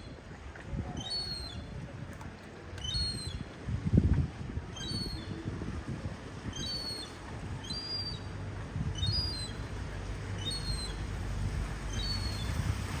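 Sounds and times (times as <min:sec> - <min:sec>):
low rumble: 0:08.3 - 0:13.0.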